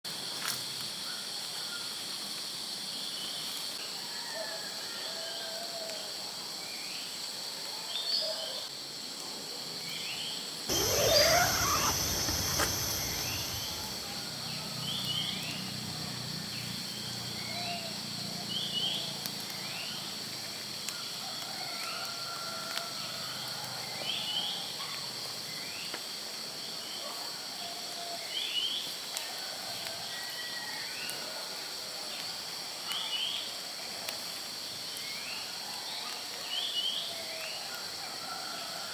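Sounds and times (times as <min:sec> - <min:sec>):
bird chirps: 0:10.7 - 0:14.2
noisy rising sweep: 0:10.7 - 0:14.2
high-pitched insect chorus: 0:10.7 - 0:18.3.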